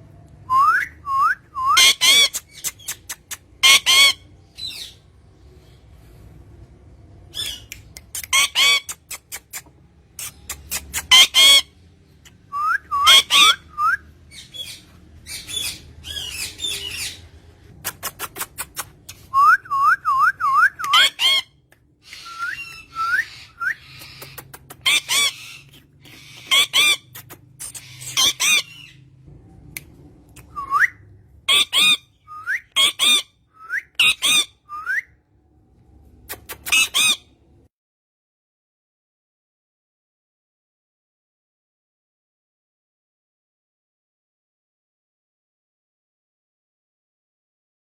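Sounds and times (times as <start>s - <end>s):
parrot squawks: 1.6s - 5.0s, 7.3s - 17.3s, 19.7s - 29.0s, 31.5s - 33.3s, 34.0s - 35.0s, 36.3s - 37.4s
parrot rising whistles: 22.1s - 23.9s.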